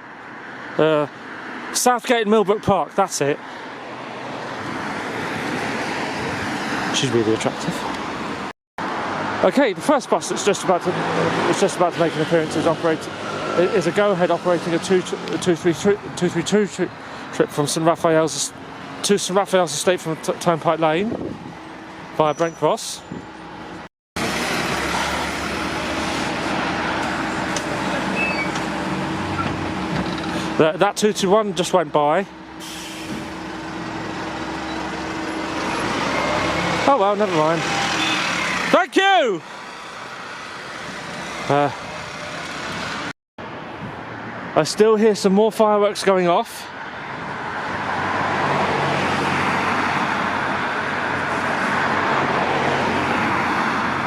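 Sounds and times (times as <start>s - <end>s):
road noise: 0.0s - 54.0s
vehicle engine and tyre noise: 0.0s - 54.0s
bus engine drone: 20.0s - 43.1s.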